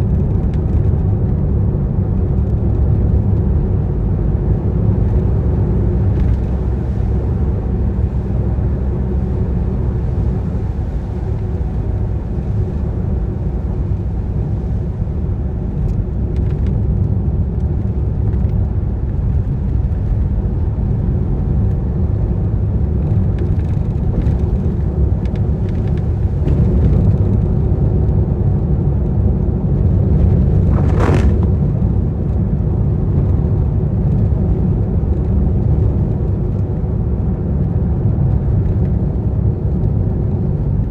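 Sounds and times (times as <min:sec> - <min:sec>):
car driving on wet road: 0:00.0 - 0:40.9
tyre swish on wet road: 0:30.4 - 0:31.8.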